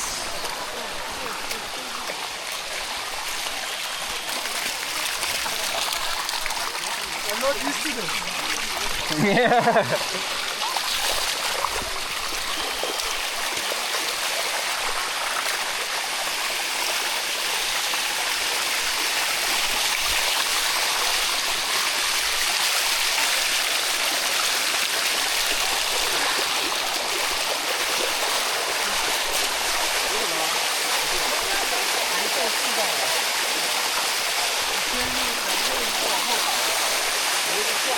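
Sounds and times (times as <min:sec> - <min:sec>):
water rushing over rocks: 0:00.0 - 0:37.9.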